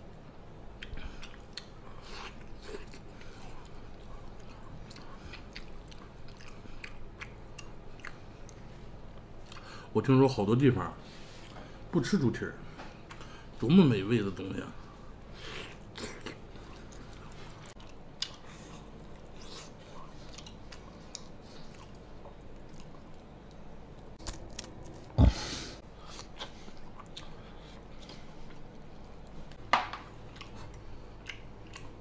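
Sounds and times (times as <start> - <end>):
person chewing and biting: 0.8 - 8.7, 15.5 - 29.2, 30.2 - 32.0.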